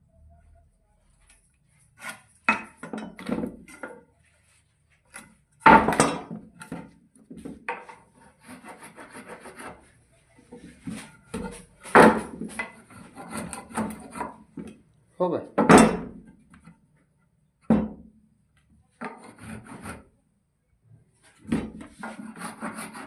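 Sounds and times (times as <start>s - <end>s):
scraping on wood: 6.6s - 9.9s, 10.6s - 14.7s, 19.0s - 20.1s, 21.4s - 23.0s.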